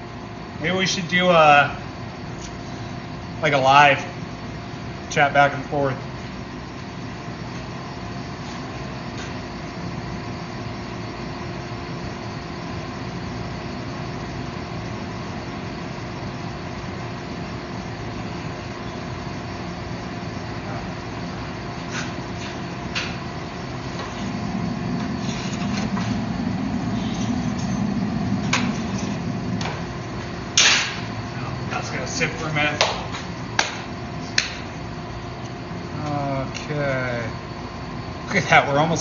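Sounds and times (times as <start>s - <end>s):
forge equipment roar and hum: 0.0s - 39.0s
low rumble: 23.6s - 31.8s
sharp metallic bang: 30.5s - 31.2s.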